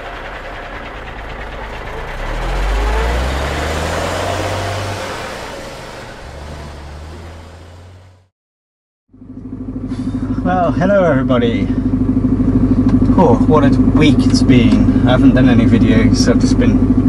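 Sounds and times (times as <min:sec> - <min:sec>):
diesel engine: 0:00.0 - 0:08.3, 0:09.1 - 0:17.0
tyre and road noise: 0:00.0 - 0:08.3.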